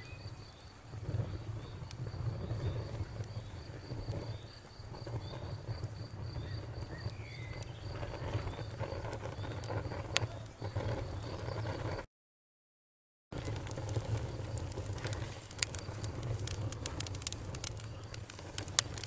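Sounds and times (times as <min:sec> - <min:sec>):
crickets chirping: 0:00.0 - 0:12.0
campfire crackling: 0:00.0 - 0:12.1, 0:13.3 - 0:19.0.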